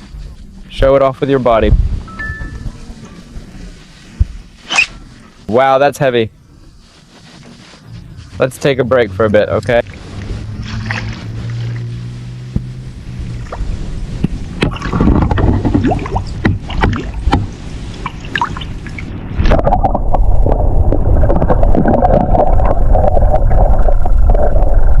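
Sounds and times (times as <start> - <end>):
water noise: 6.6 - 25.0.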